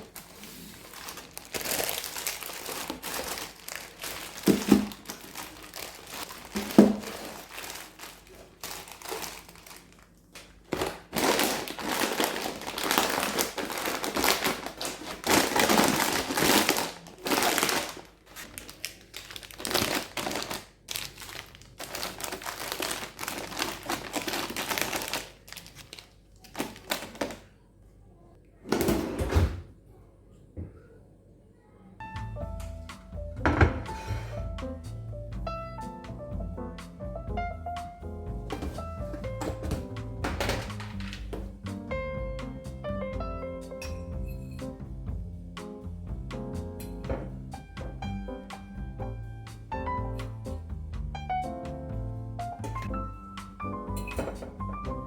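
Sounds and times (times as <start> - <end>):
packaging crinkling: 0.0 - 27.5.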